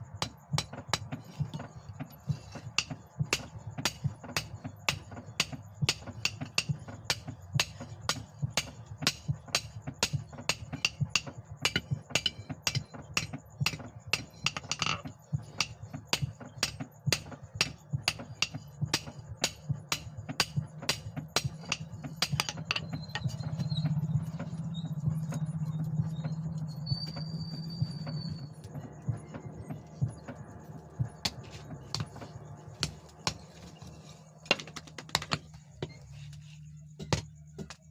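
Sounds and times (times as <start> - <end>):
hammer striking steel on anvil: 2.3 - 23.3.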